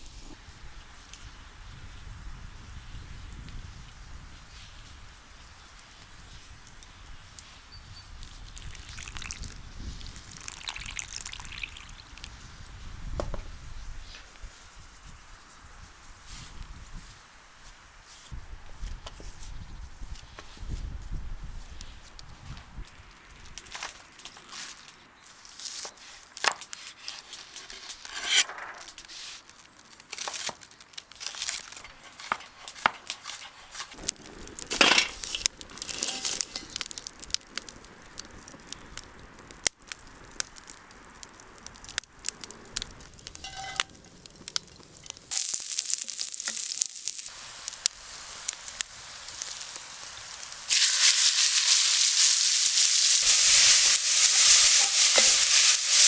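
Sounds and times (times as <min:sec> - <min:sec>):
food handling clicks and rustles: 0:25.8 - 0:37.0, 0:48.5 - 0:56.0
food sizzling in a pan: 0:34.9 - 0:36.9, 0:43.4 - 0:44.0, 0:45.2 - 0:56.0.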